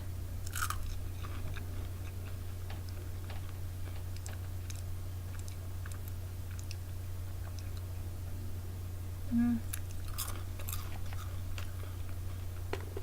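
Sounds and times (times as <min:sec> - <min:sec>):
low steady hum: 0:00.0 - 0:13.0
chewing crunchy chips: 0:00.4 - 0:06.8, 0:09.7 - 0:12.2.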